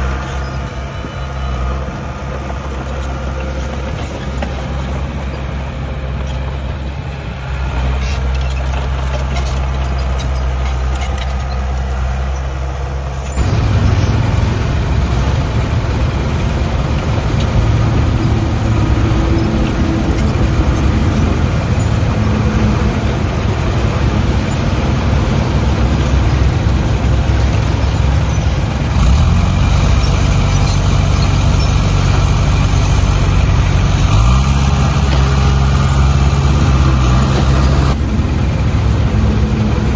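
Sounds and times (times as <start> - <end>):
heavy diesel engine revving: 7.0 - 39.9.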